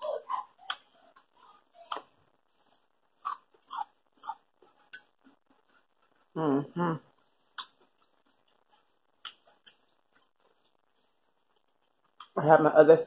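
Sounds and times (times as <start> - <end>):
crunchy chewing of salad: 1.9 - 6.3.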